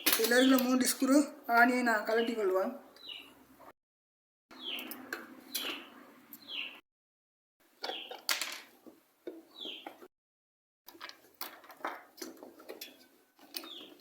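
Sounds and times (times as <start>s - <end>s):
bird chirping: 0.0s - 3.5s, 4.5s - 6.8s, 7.8s - 8.3s, 9.3s - 10.1s, 12.9s - 14.0s.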